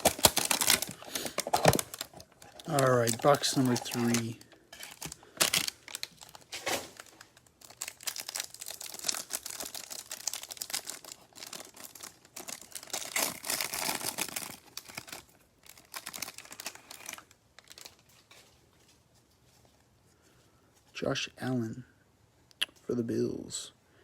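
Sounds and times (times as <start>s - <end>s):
plastic packaging crinkling and tearing: 0.0s - 19.0s.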